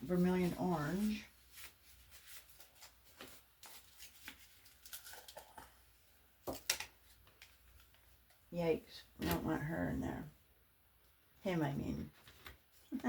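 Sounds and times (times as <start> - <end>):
paint bottles clicking and rustling: 3.1 - 8.4.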